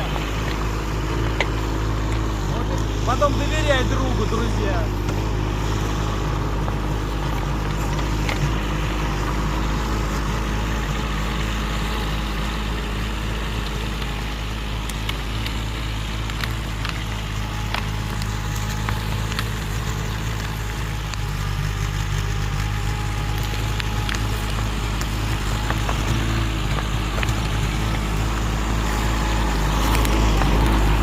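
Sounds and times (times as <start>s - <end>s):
excavator diesel engine running: 0.0s - 31.0s
sharp clicks and snaps: 6.6s - 9.4s, 13.4s - 31.0s.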